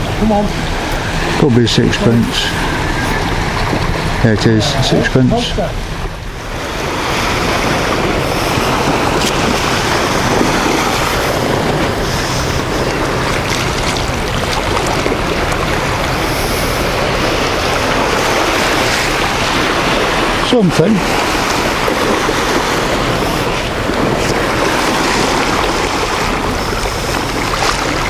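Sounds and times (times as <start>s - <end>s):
sea surf washing on beach: 0.0s - 28.0s
wind buffeting microphone: 0.0s - 28.0s.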